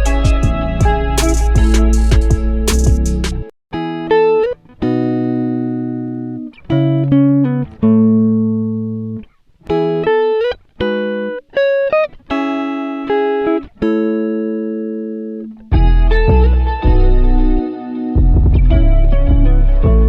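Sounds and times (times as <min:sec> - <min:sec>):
fuller music with bass: 0:00.0 - 0:03.9, 0:15.1 - 0:20.0
clean guitar plucking chords: 0:00.0 - 0:20.0.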